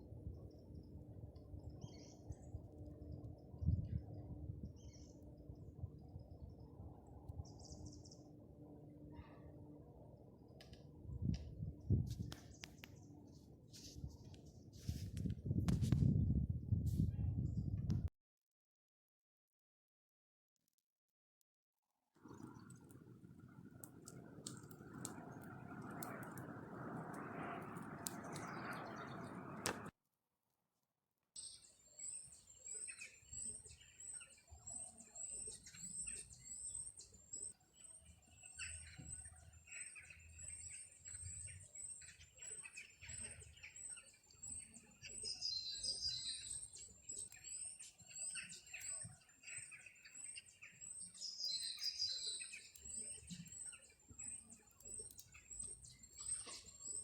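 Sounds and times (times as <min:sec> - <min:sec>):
forest birds calling: 0:22.2 - 0:29.9, 0:32.0 - 0:57.0
noisy rushing with clicks: 0:22.2 - 0:29.9.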